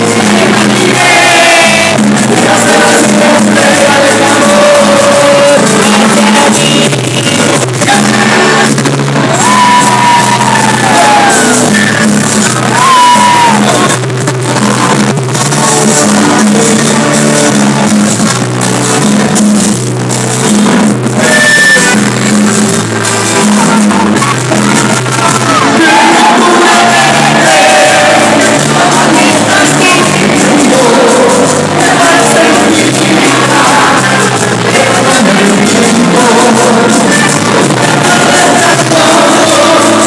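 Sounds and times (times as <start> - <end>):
crowd shouting along: 0.0 - 6.6, 7.4 - 16.8, 23.2 - 40.0
lead singer's vocals: 0.0 - 15.0, 23.4 - 40.0
live band playing: 0.0 - 40.0.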